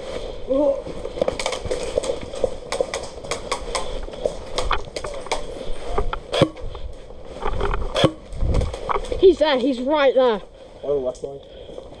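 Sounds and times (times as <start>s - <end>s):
airsoft gunfire clicks and cracks: 1.4s - 5.5s.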